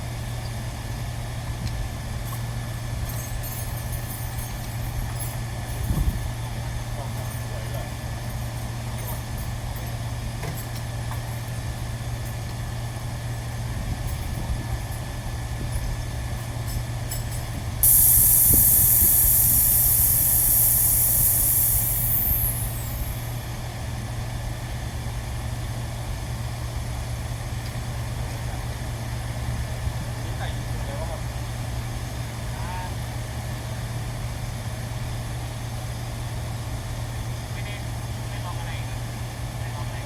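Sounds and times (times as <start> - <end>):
low hum: 17.8 - 23.4
pressurised air hissing: 17.8 - 23.4.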